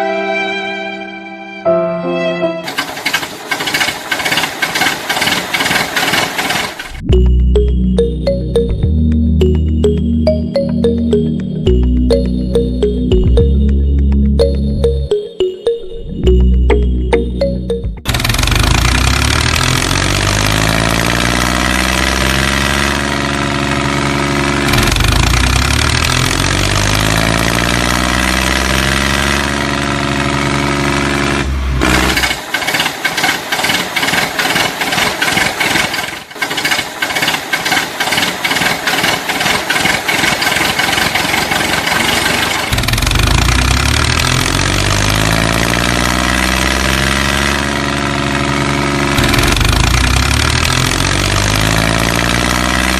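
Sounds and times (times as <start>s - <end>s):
fast even engine chugging: 2.6s - 7.0s, 18.0s - 22.3s, 22.9s - 27.8s, 29.7s - 45.4s, 47.8s - 52.1s
tractor engine revving: 2.6s - 7.1s, 16.3s - 52.9s.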